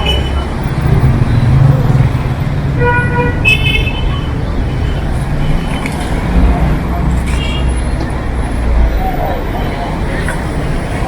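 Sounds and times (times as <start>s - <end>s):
street traffic engines: 0.0s - 11.0s
vehicle horn: 2.8s - 4.2s.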